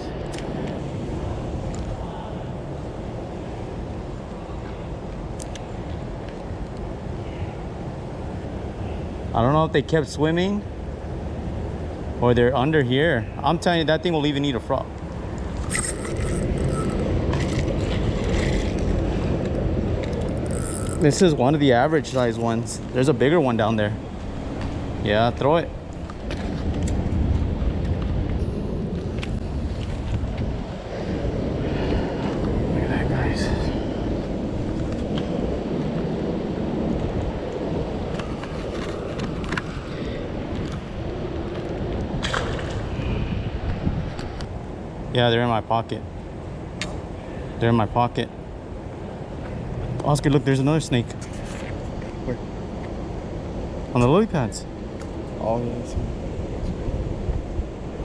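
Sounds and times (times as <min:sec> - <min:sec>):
wind buffeting microphone: 0:14.8 - 0:45.1, 0:51.0 - 0:58.0.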